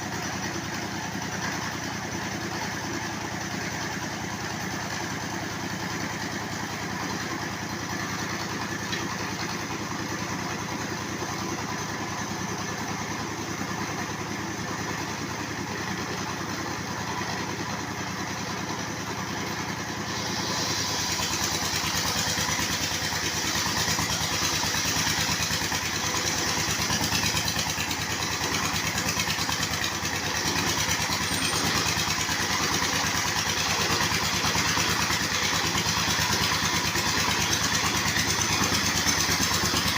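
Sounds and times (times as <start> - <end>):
circular sawmill running: 0.0 - 39.9.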